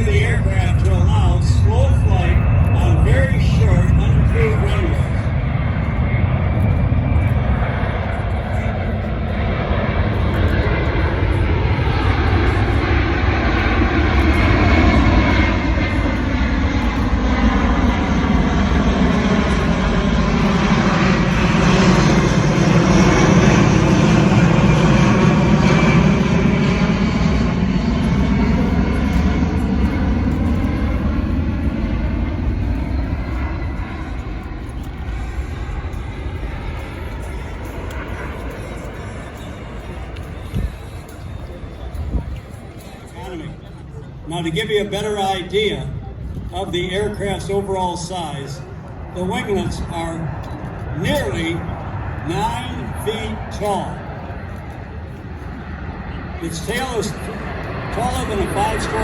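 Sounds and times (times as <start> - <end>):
jet aircraft passing low: 0.0 - 59.0.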